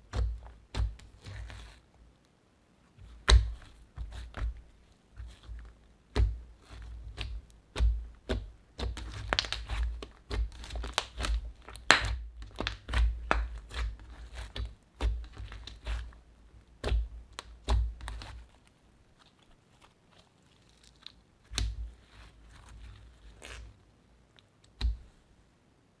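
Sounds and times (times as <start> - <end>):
soft squishy thumps: 3.0 - 23.8
slime popping and crackling: 5.2 - 16.1.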